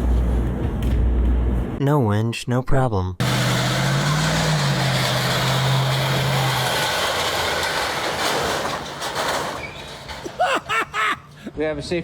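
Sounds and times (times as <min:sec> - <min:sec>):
vehicle engine humming: 0:03.2 - 0:11.5.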